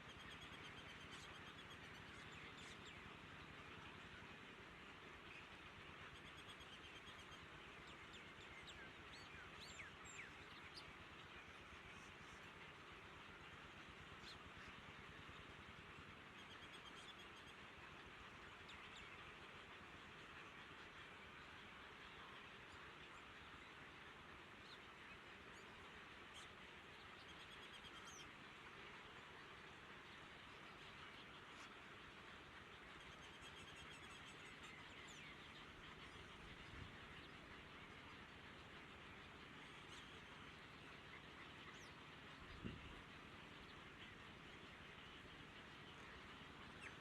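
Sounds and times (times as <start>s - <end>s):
steady background hiss: 0.0s - 47.0s.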